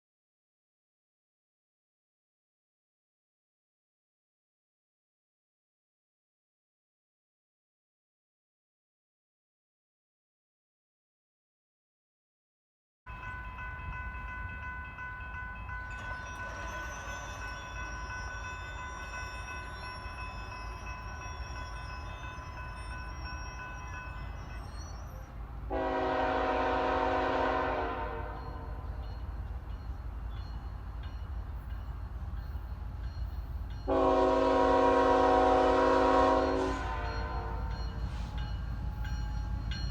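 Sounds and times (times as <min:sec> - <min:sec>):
train rumbling: 0:13.1 - 0:39.9
high ringing tones: 0:13.2 - 0:25.3
locomotive air horn: 0:25.7 - 0:28.7, 0:33.9 - 0:37.7.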